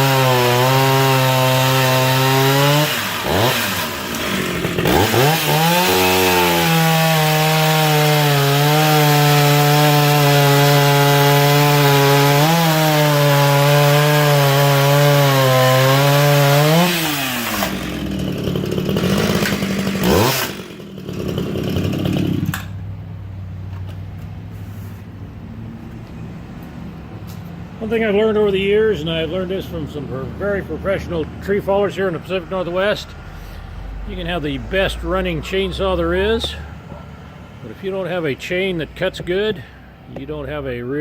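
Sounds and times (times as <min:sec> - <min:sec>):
chainsaw cutting wood: 0:00.0 - 0:22.8.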